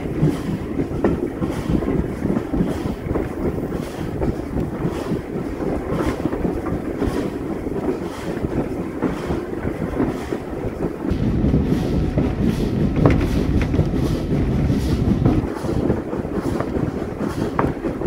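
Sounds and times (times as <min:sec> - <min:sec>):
train wheels on track: 0:00.0 - 0:18.0
wind buffeting microphone: 0:00.0 - 0:18.0
faint regular beats: 0:10.9 - 0:16.0.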